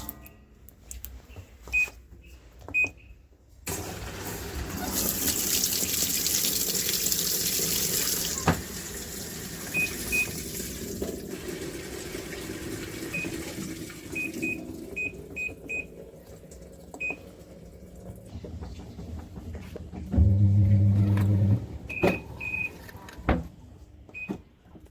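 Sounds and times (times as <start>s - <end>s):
water rushing into washing machine: 3.7s - 22.8s.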